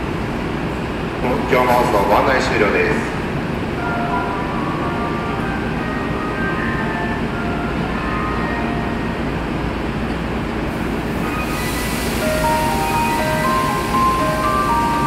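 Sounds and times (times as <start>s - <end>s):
train equipment humming: 0.0s - 15.0s
chiming departure melody: 3.7s - 9.7s, 11.1s - 15.0s
hiss: 11.0s - 14.8s.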